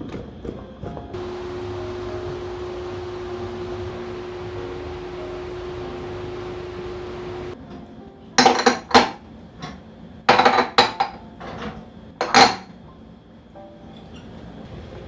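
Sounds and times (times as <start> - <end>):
steady humming: 1.1 - 8.2
dishes and utensils clattering: 8.4 - 12.8.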